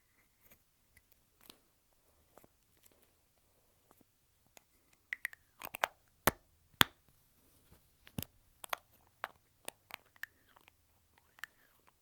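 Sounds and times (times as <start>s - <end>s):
lipstick tube clicks and taps: 5.1s - 7.0s.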